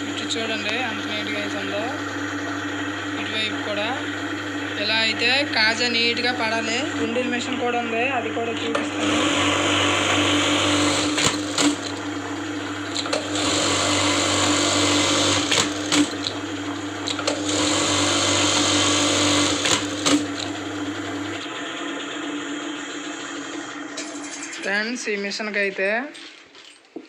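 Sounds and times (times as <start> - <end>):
motor hum: 0.0 - 25.2
sewing machine stitching: 8.6 - 24.5
sharp machine clicks: 11.0 - 12.1, 15.3 - 16.4.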